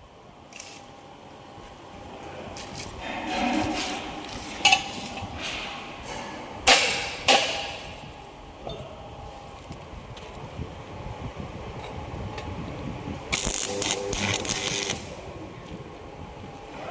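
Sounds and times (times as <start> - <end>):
metal scraping and rattling: 2.5 - 8.1
metal clanks: 3.0 - 8.9.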